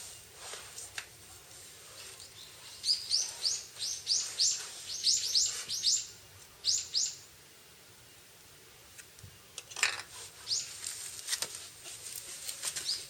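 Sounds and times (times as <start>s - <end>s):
small bird chirping: 2.2s - 7.3s, 10.4s - 10.8s, 12.8s - 13.0s.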